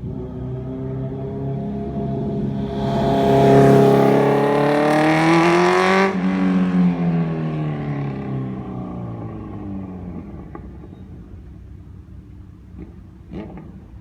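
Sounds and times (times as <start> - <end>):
motorcycle passing by: 0.0 - 9.9.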